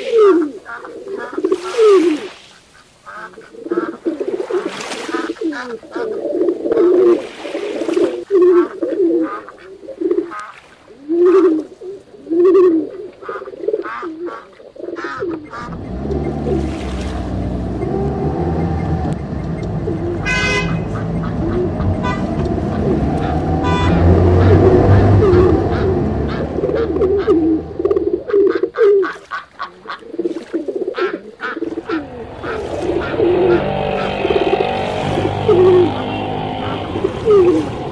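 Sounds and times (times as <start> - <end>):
pigeons cooing: 0.0 - 2.4, 3.1 - 37.9
car engine: 15.5 - 28.4, 31.5 - 37.9.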